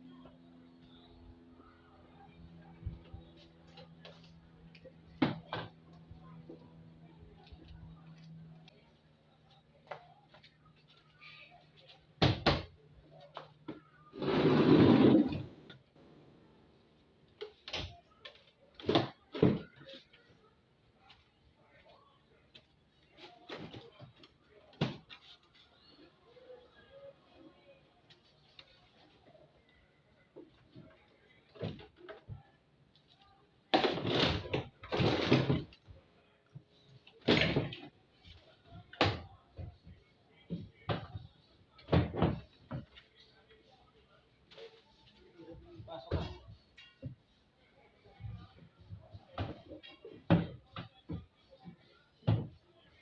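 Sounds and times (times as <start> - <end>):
rough scraping: 14.2 - 15.6.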